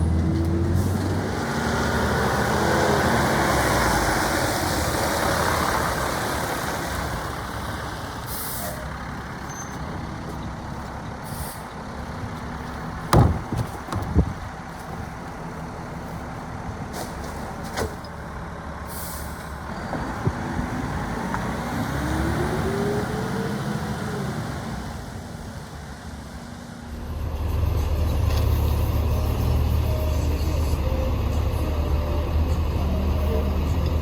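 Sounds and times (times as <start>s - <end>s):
garbage truck engine running: 0.0s - 34.0s
sharp bangs: 13.1s - 14.4s.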